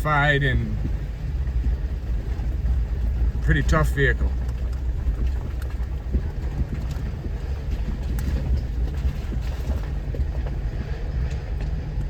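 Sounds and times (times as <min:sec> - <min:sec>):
low engine and drivetrain rumble: 0:00.0 - 0:12.0
knocks and rattles from rocks: 0:04.2 - 0:11.8.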